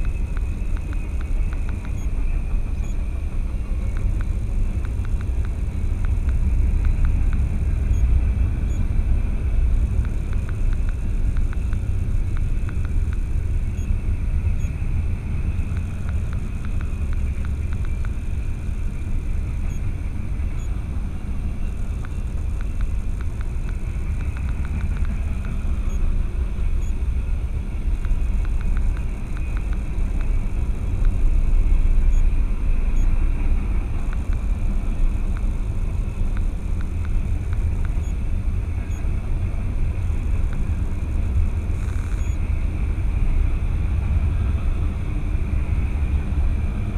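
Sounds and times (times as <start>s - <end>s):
faint clicks: 0.0s - 8.1s, 9.9s - 13.9s, 15.6s - 18.9s, 21.6s - 26.1s, 28.0s - 31.3s, 33.9s - 38.2s
vehicle rumble: 0.0s - 46.9s.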